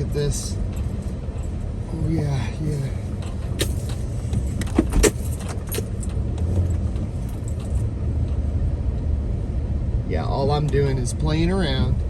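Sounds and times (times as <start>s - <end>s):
engine and tyre rumble: 0.0s - 12.0s
knocks and rattles over bumps: 3.1s - 8.4s.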